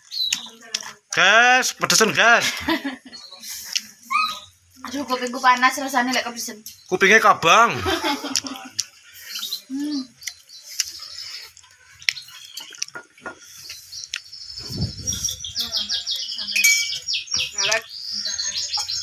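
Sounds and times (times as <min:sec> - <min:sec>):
small bird chirping: 0:00.0 - 0:00.8, 0:08.3 - 0:19.0.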